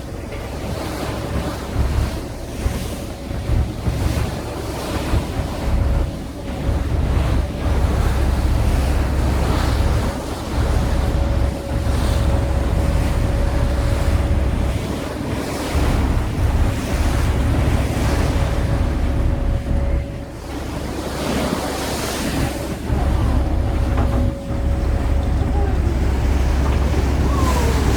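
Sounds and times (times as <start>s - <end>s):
ferry engine hum: 0.0s - 27.9s
water rushing past hull: 0.0s - 27.9s
wind buffeting microphone: 0.0s - 27.9s.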